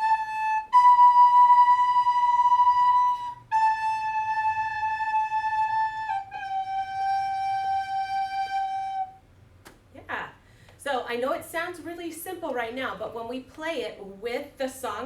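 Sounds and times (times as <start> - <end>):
recorder playing slow notes: 0.0 - 9.2.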